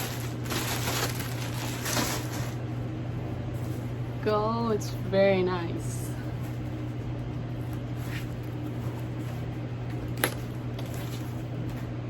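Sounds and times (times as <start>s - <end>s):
bag rustling: 0.0s - 2.6s, 7.6s - 11.6s
low room hum: 0.0s - 12.0s.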